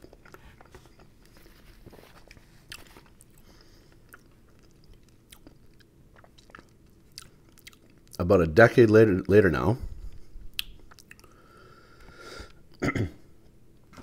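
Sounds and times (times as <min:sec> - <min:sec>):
chewing crispy chicken: 0:00.0 - 0:08.2, 0:10.1 - 0:11.5
wet mouth clicks: 0:10.5 - 0:11.4.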